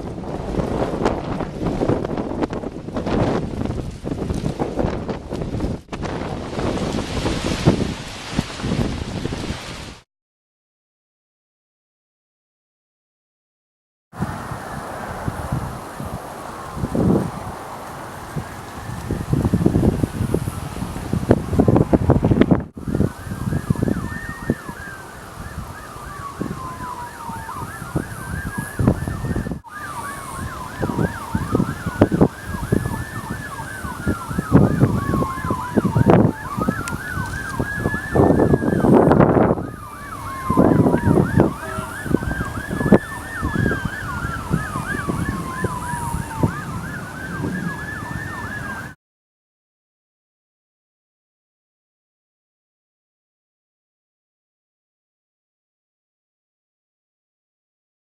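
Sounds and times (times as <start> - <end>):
wind on microphone: 0.0 - 10.0, 14.2 - 49.0
siren wailing: 14.2 - 22.1, 22.8 - 49.0
siren yelping: 14.3 - 20.7, 22.8 - 49.0.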